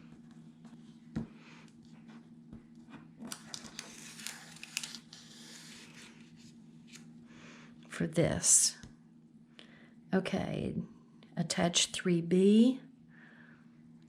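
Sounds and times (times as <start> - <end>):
paper rustling and crinkling: 3.1 - 7.1.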